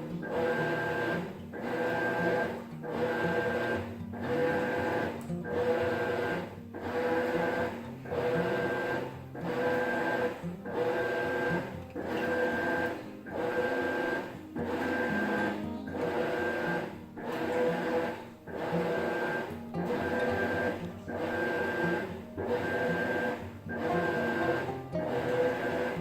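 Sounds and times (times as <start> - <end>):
washing machine agitator whining: 0.0 - 26.0.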